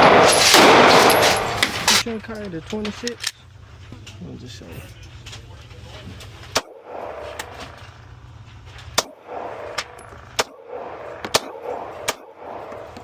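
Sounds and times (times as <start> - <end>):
pistol shots: 0.0 - 2.0, 6.5 - 7.6, 9.0 - 13.0.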